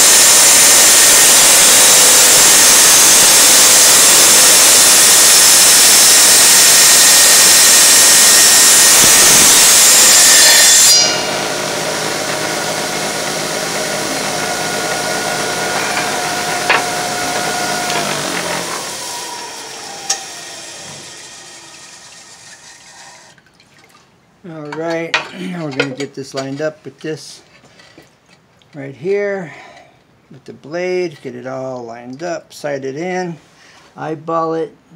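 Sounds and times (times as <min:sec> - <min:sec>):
saw motor humming and whining: 0:00.0 - 0:23.3
tile saw grinding through tile: 0:00.0 - 0:23.3.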